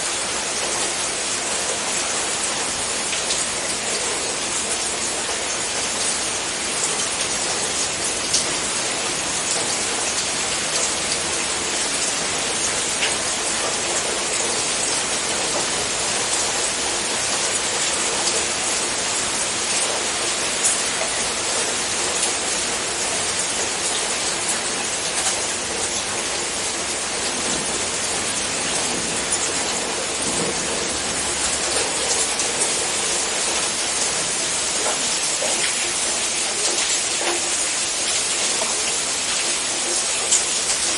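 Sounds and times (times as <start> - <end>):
steady rain hiss: 0.0 - 40.9
rain drop ticks: 9.4 - 14.5, 23.8 - 26.2, 33.5 - 40.9.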